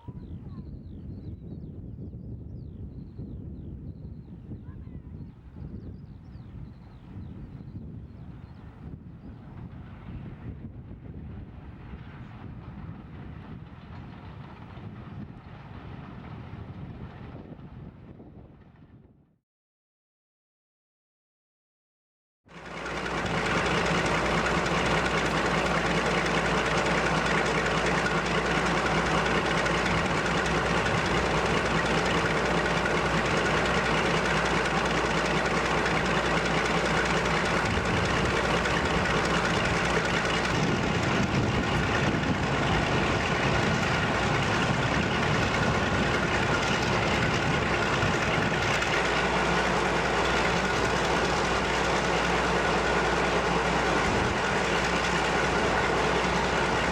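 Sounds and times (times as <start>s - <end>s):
locomotive engine running: 22.5s - 56.9s.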